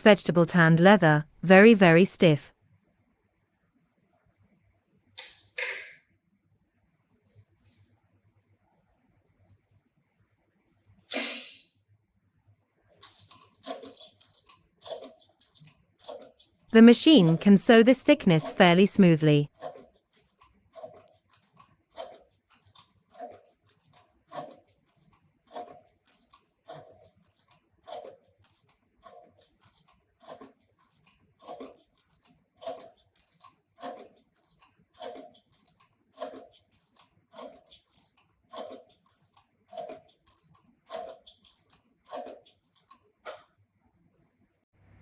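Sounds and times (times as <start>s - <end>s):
stitching machine clunking: 13.0s - 43.5s.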